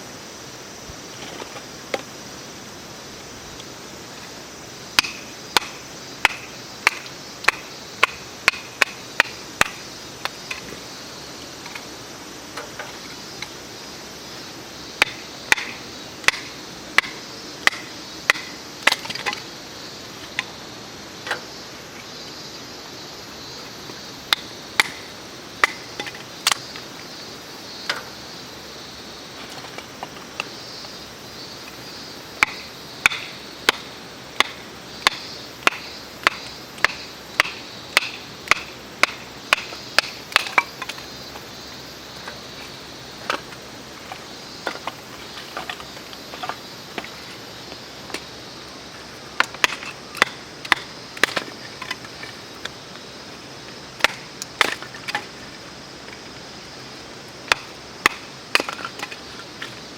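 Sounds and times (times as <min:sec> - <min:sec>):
wood being chopped: 0:05.0 - 0:09.8, 0:15.0 - 0:19.4, 0:24.3 - 0:26.6, 0:32.4 - 0:41.0, 0:49.4 - 0:52.0, 0:54.0 - 0:55.3, 0:57.5 - 0:59.2.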